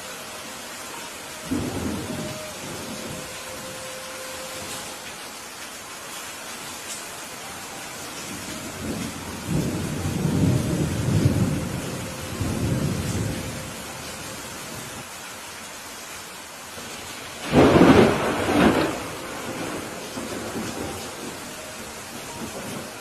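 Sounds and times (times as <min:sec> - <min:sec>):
steady rain hiss: 0:00.0 - 0:23.0
rolling thunder rumble: 0:08.5 - 0:13.9, 0:17.4 - 0:23.0
sharp thunderclap: 0:17.4 - 0:20.9.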